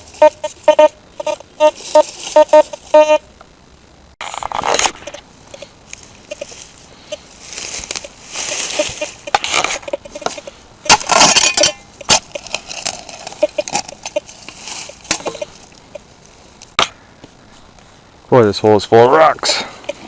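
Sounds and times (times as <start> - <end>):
digging tool scraping soil: 4.2 - 5.7, 6.3 - 15.6.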